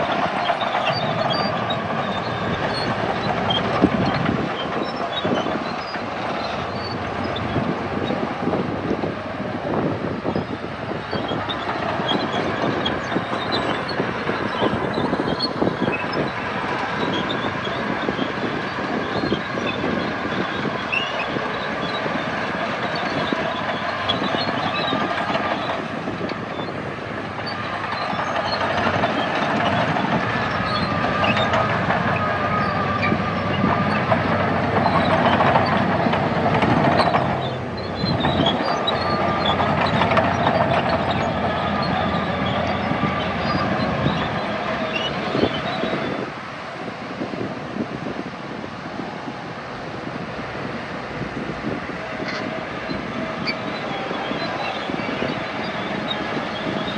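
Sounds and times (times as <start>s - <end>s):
rattling and clanking: 0.0s - 8.7s, 10.9s - 46.0s
diesel earthmoving machinery engine: 0.0s - 56.9s.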